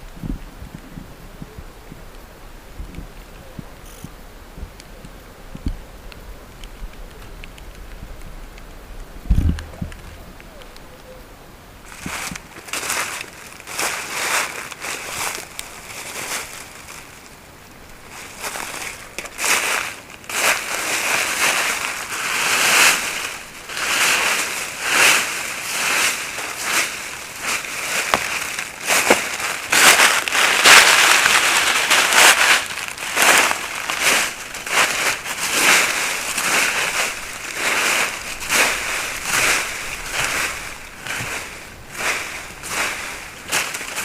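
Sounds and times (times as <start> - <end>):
crunching and rustling: 11.8 - 44.0.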